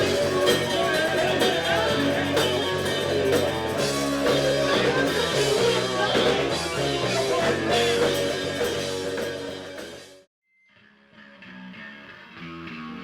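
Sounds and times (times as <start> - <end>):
rock band playing: 0.0 - 10.3.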